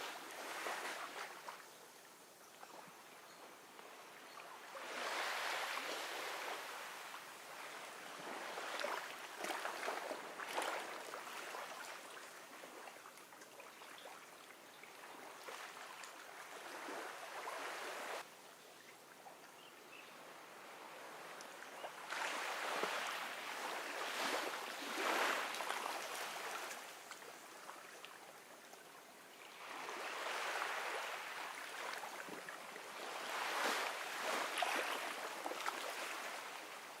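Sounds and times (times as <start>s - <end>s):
ocean waves washing onto beach: 20.4s - 27.1s, 29.6s - 37.0s.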